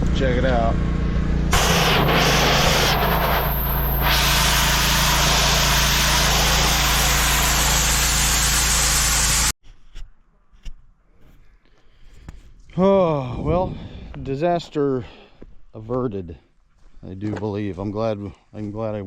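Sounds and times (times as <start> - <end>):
pressure washer engine running: 0.6 - 9.6
high-pressure spray hissing: 1.5 - 9.6.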